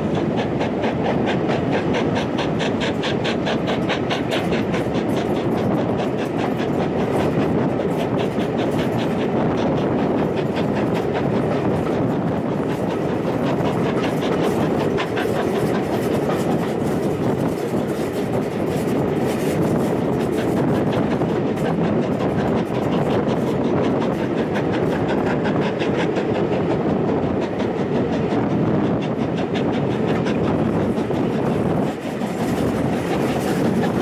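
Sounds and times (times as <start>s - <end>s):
train wheels rumbling and clicking: 0.0s - 34.0s.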